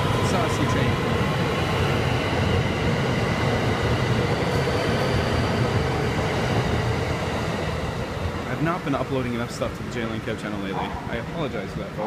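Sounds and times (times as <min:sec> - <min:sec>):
electric train passing: 0:00.0 - 0:12.0.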